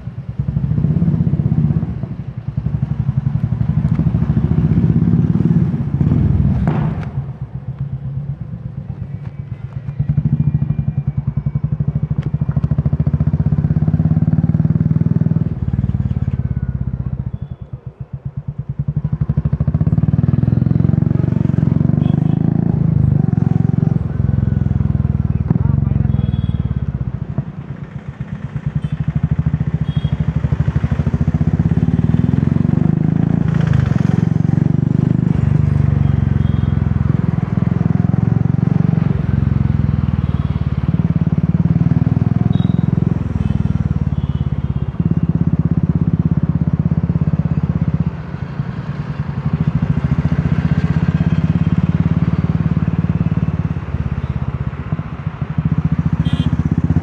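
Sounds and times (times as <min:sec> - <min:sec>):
motorcycle engine thumping: 0:06.0 - 0:07.4.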